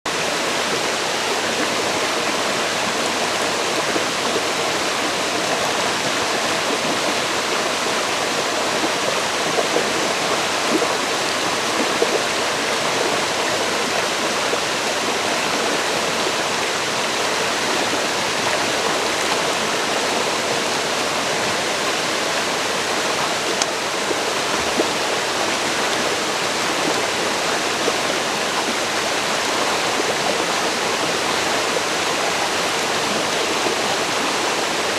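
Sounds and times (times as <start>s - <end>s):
river flowing over rocks: 0.1s - 34.9s.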